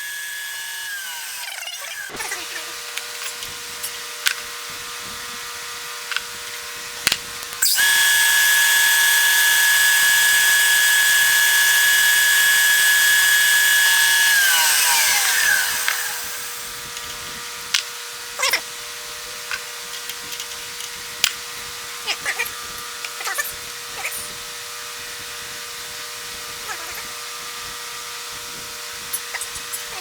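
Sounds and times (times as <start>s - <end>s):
machine spindle whine: 0.0s - 6.9s, 7.6s - 18.3s.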